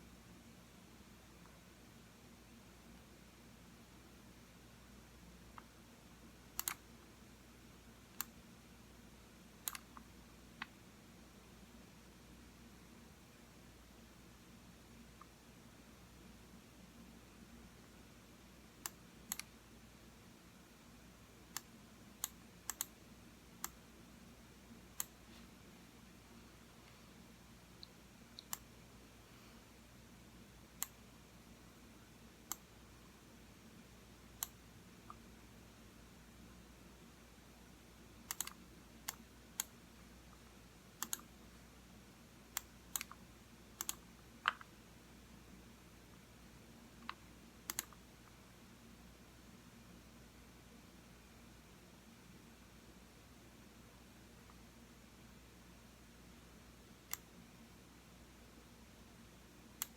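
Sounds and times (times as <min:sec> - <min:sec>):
faint room hum: 0:00.0 - 0:59.9
computer mouse buttons clicking: 0:06.6 - 0:06.8, 0:09.6 - 0:10.8, 0:18.8 - 0:19.5, 0:21.5 - 0:23.0, 0:25.0 - 0:25.2, 0:34.4 - 0:35.2, 0:38.3 - 0:39.7, 0:41.0 - 0:41.3, 0:42.6 - 0:43.2, 0:43.8 - 0:44.7, 0:47.0 - 0:48.0, 0:57.0 - 0:57.3.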